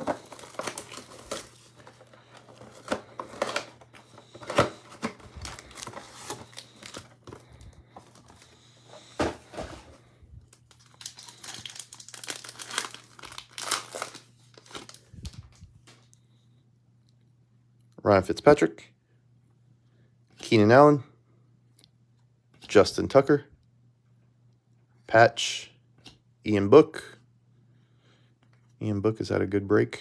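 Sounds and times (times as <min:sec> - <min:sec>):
foil packs crinkling: 0:00.0 - 0:16.0.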